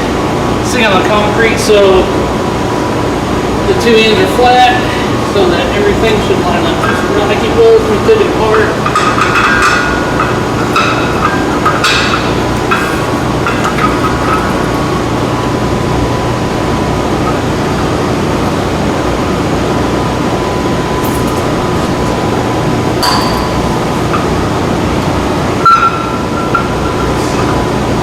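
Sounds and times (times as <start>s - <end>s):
loud background noise: 0.0s - 28.0s
metal clinks and knocks: 8.6s - 15.0s, 23.0s - 24.5s.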